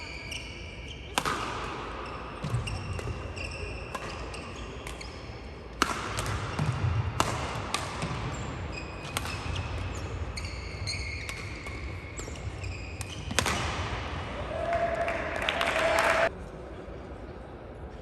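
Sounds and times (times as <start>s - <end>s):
shoes squeaking on court: 0.0s - 1.2s, 2.0s - 5.4s, 7.9s - 13.8s
rackets striking shuttlecock: 1.1s - 14.3s.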